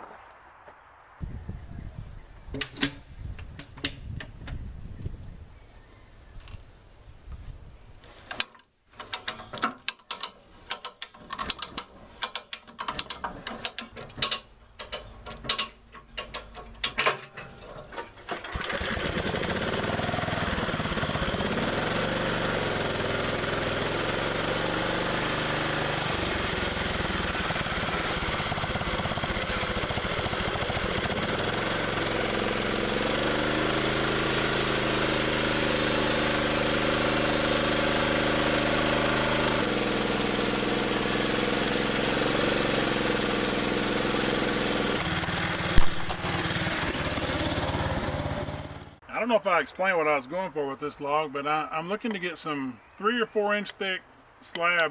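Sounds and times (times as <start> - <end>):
sawmill engine running: 18.4 - 53.5.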